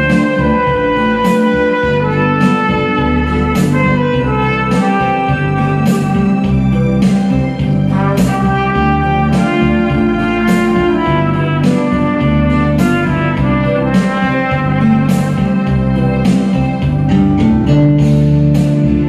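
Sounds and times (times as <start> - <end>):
trumpet playing melody: 0.0 - 17.1
backing music with bass: 0.0 - 19.0.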